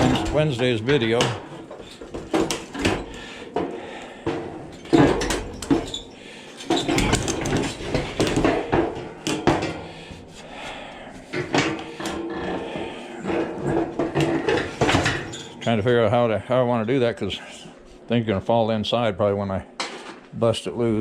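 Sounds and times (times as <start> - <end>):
metal clanks and rattles of tools: 0.0 - 9.9, 11.3 - 15.8
sheet-metal panels handled: 6.6 - 9.8.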